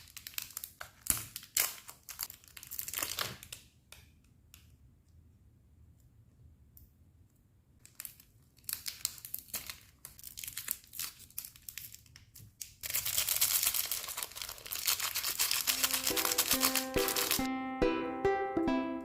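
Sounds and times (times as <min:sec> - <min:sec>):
packaging tearing and crinkling: 0:00.0 - 0:03.7, 0:07.8 - 0:17.5.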